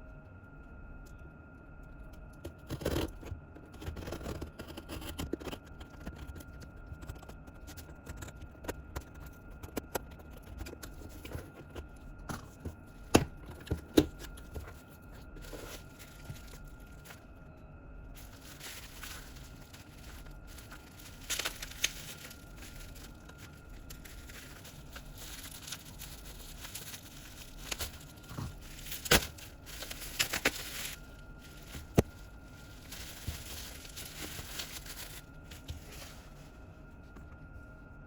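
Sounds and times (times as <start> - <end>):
plastic wrap tearing and crinkling: 13.6 - 17.2, 18.2 - 36.4
packaging clicks: 18.2 - 35.8.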